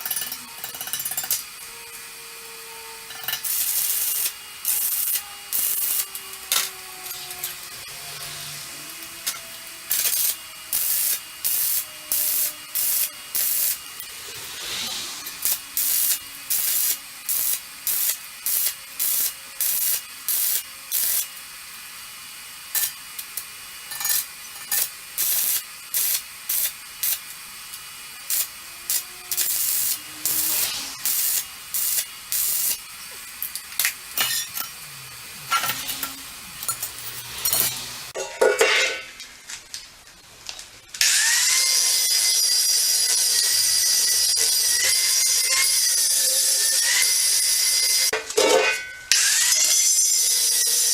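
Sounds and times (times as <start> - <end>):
welder arc crackling: 0.0 - 38.2.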